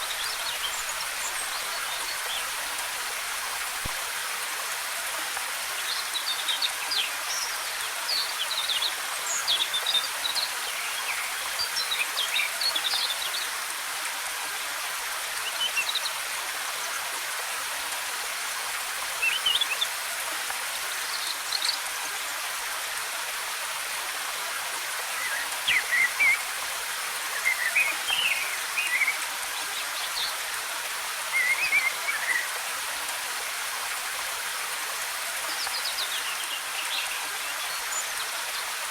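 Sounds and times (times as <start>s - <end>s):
waterfall rushing: 24.2s - 38.9s.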